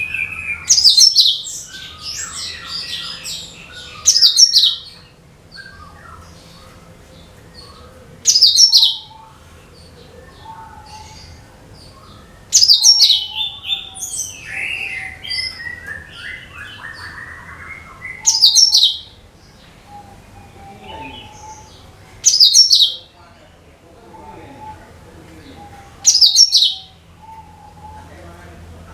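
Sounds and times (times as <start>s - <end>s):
bird whistled song: 0.0s - 6.9s, 7.5s - 19.2s, 19.8s - 23.1s, 25.6s - 28.2s
soft bird chirps: 0.0s - 23.0s.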